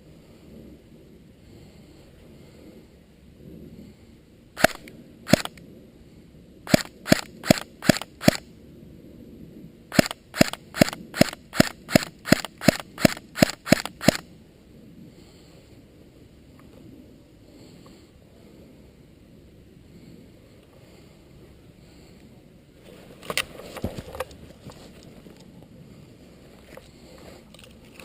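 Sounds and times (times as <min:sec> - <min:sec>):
airsoft gun shots: 0:04.6 - 0:05.6, 0:06.7 - 0:08.4, 0:09.9 - 0:14.2.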